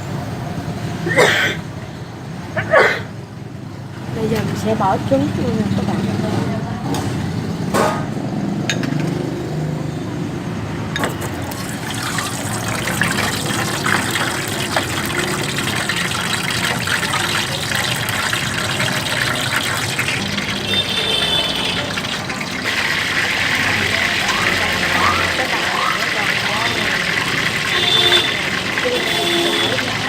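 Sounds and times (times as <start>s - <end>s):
eggs frying in hot oil: 11.2s - 30.0s.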